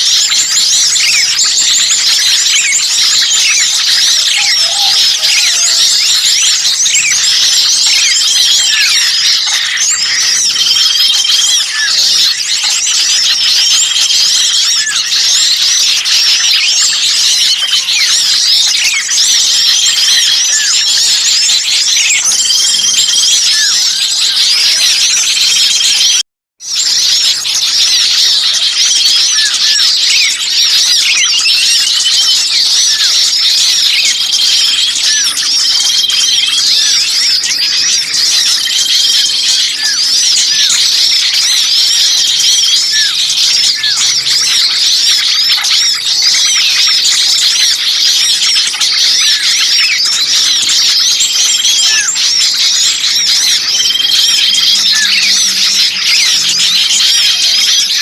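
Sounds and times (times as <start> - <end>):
songbirds chirping and squealing: 0.0 - 58.0.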